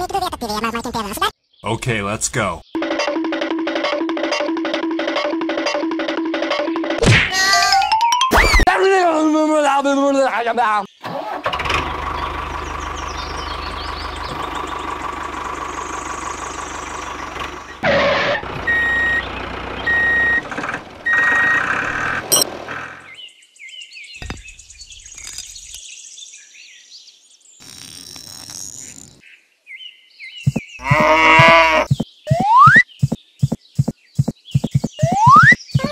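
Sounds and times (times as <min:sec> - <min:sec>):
birds chirping: 0:00.0 - 0:02.8, 0:11.8 - 0:17.8, 0:18.6 - 0:27.7, 0:29.0 - 0:35.9
tractor engine running: 0:11.2 - 0:23.1
reversing beeps: 0:18.7 - 0:19.2, 0:19.9 - 0:20.4, 0:21.1 - 0:22.4, 0:32.3 - 0:32.8, 0:34.6 - 0:35.9.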